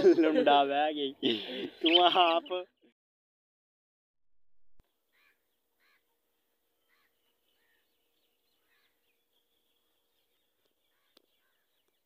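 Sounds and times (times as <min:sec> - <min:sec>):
bird calls: 0:06.8 - 0:12.0.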